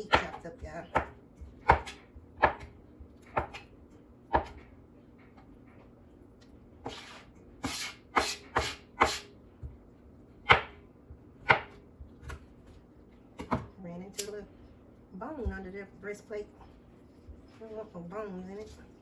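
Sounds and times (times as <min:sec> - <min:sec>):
knife chopping meat: 0:00.0 - 0:03.7, 0:04.3 - 0:04.6, 0:06.8 - 0:09.3, 0:10.5 - 0:10.8, 0:11.4 - 0:12.4.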